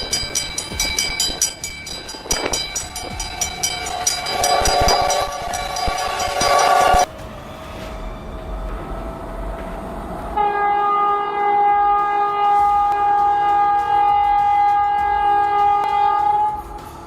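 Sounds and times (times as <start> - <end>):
low rumble of a train: 0.0 - 17.0
train horn blast: 10.3 - 16.8.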